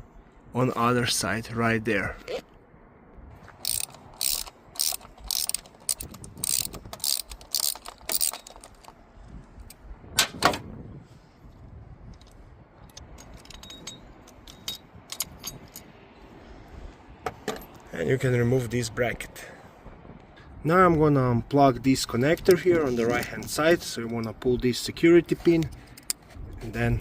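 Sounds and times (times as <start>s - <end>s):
hand ratchet clicking: 3.6s - 8.9s.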